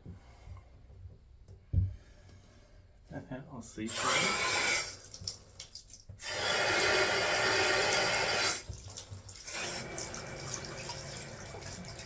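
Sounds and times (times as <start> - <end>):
water gushing from faucet: 3.9 - 12.0.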